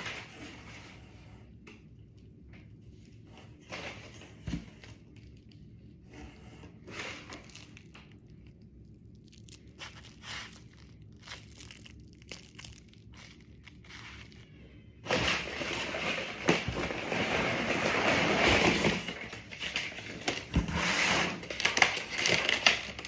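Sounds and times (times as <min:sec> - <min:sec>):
packaging crinkling and tearing: 0:06.8 - 0:20.7, 0:21.3 - 0:23.0.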